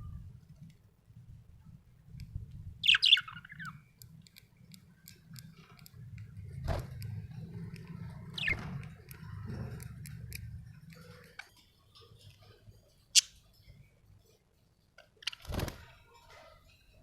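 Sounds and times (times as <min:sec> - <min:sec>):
budgerigar chirps: 0:02.8 - 0:03.7
budgerigar clicking and chattering: 0:02.8 - 0:06.0, 0:07.8 - 0:11.6, 0:13.2 - 0:13.4.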